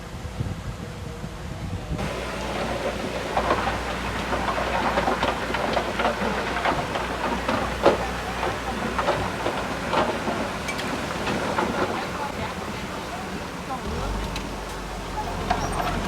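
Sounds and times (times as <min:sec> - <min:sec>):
bulldozer diesel engine droning: 0:00.9 - 0:16.0
metallic clanks and rattles: 0:02.0 - 0:16.0.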